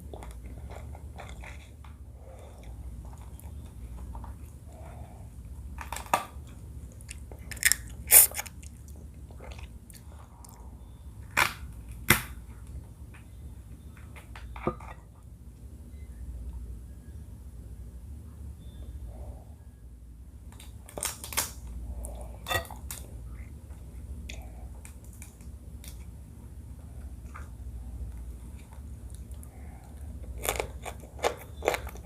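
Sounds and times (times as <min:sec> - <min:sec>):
person chewing: 0:06.9 - 0:10.6, 0:28.5 - 0:32.0
loud crunches: 0:07.5 - 0:08.6.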